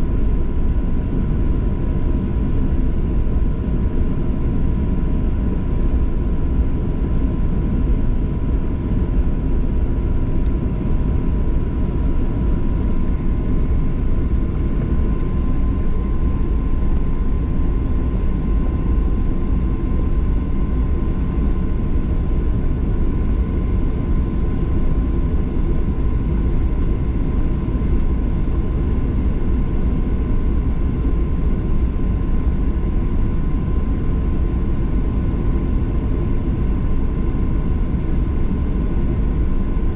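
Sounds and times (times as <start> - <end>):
aircraft cabin engine rumble: 0.0 - 39.9
thin steady whine: 0.0 - 39.9.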